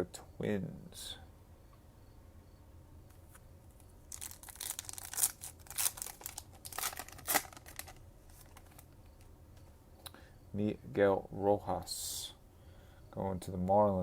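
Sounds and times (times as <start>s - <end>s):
foil wrapper tearing and crinkling: 4.1s - 8.8s.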